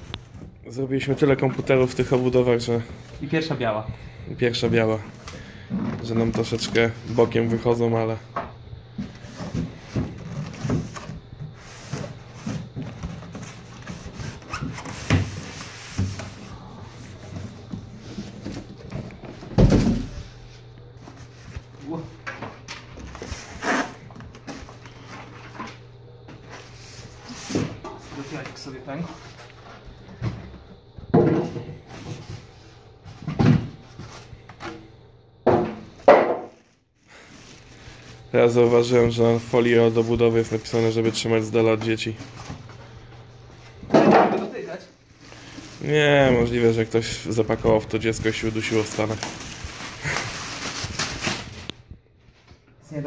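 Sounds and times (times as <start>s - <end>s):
packaging and plastic foil rustling: 4.5s - 7.9s, 9.1s - 20.2s, 35.8s - 43.8s, 44.5s - 51.9s.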